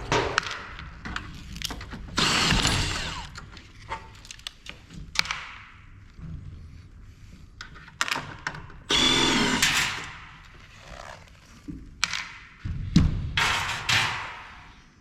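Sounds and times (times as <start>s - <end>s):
power drill whirring: 2.2s - 3.4s, 8.9s - 10.1s.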